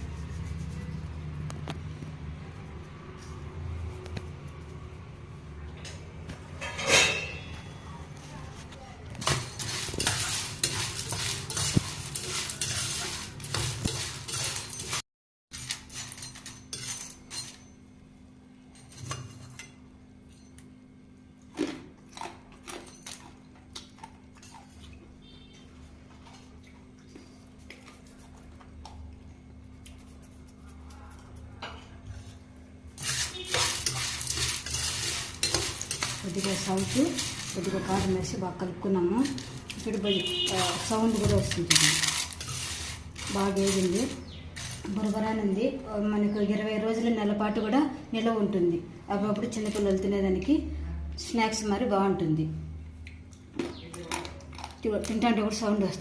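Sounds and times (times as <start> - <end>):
spoon stirring beans in metal pot: 9.1 - 15.0, 33.0 - 38.4, 39.1 - 45.4.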